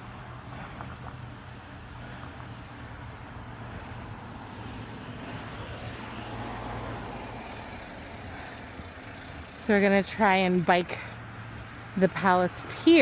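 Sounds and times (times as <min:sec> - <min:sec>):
road traffic hum: 0:00.0 - 0:13.0
vehicle passing by: 0:00.0 - 0:13.0.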